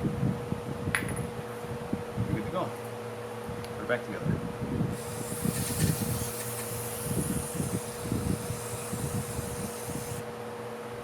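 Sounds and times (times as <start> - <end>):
constant hum: 0.0 - 11.0
high hiss: 4.9 - 10.2.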